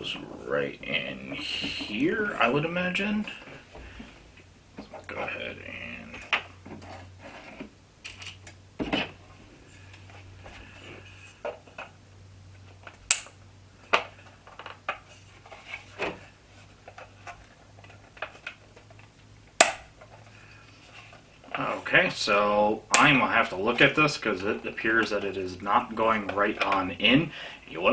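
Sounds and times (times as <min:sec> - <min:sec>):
plastic parts clicking and knocking: 0:12.7 - 0:15.1, 0:16.8 - 0:20.3.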